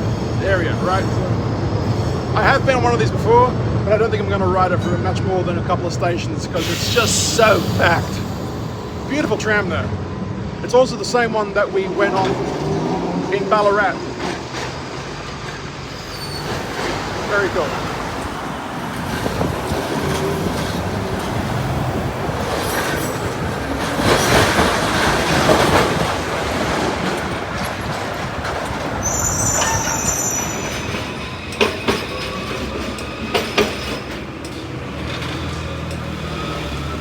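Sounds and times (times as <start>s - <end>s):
tram rumbling on track: 0.0s - 37.0s
high wheel squeal: 6.5s - 10.0s, 11.9s - 25.4s, 28.9s - 34.3s.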